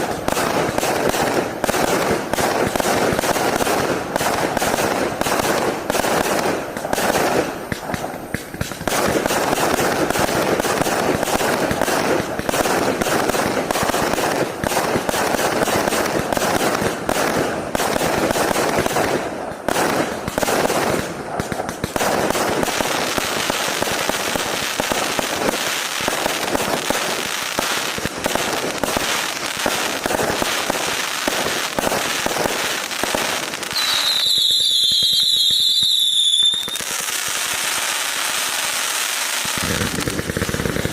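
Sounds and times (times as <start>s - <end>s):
firework cake firing shots: 0.0s - 40.9s.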